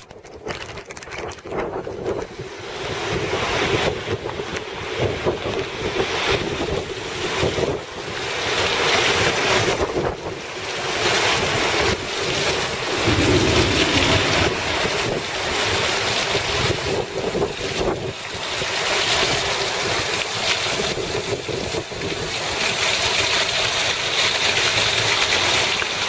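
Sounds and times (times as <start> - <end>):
rain rushing: 12.4 - 16.9
wind buffeting microphone: 12.6 - 16.0
wind rushing: 12.6 - 16.0.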